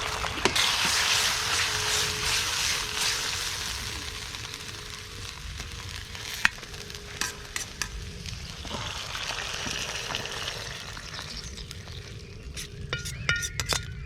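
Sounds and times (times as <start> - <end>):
food sizzling in a wok: 0.0 - 14.0
utensil clinking against wok: 12.6 - 14.0.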